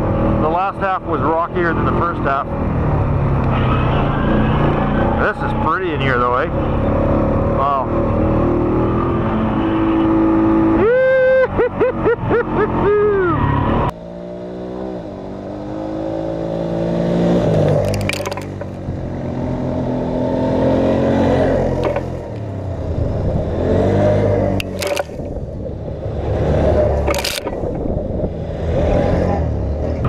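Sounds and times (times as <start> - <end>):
atv engine running: 0.0 - 13.3, 13.9 - 30.0
short knocks or scrapes: 17.6 - 18.8, 21.8 - 22.2.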